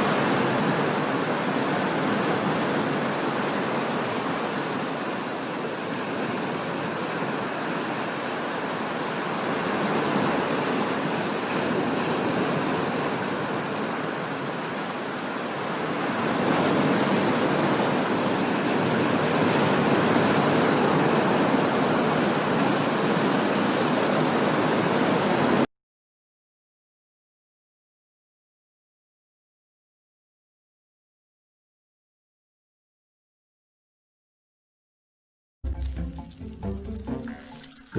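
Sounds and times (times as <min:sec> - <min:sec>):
rushing water: 0:00.0 - 0:25.7, 0:35.7 - 0:37.9.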